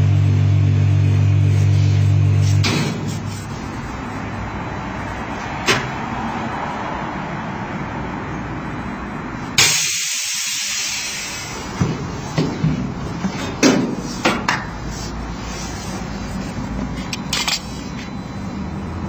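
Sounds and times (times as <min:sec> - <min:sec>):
air hissing into chamber: 0:09.6 - 0:11.7.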